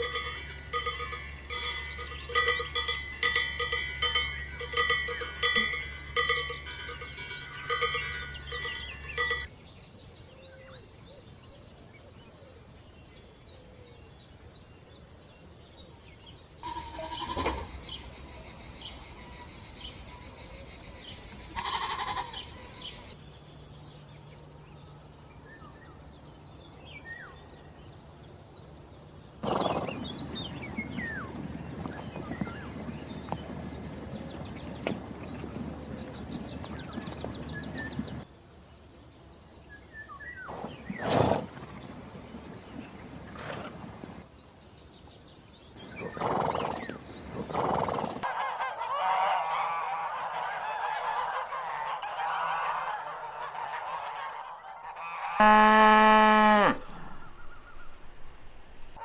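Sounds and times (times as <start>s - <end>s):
outdoor noise: 0.0s - 59.0s
flock honking: 16.6s - 17.7s, 55.4s - 57.1s
loud drawn-out fowl call: 48.2s - 57.6s
faint bird chirps: 56.8s - 59.0s.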